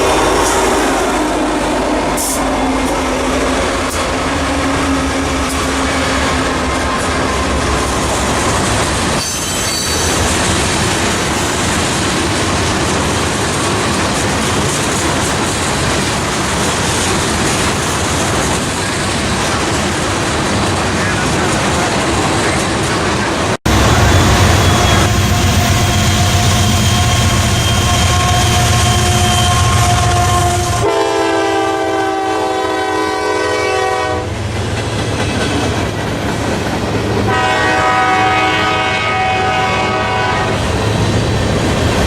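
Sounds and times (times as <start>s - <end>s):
train wheels clattering on rails: 5.0s - 29.8s, 34.3s - 37.6s.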